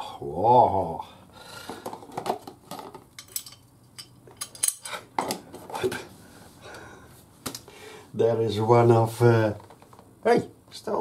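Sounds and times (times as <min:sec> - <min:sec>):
metal tools clinking: 0:03.2 - 0:05.0.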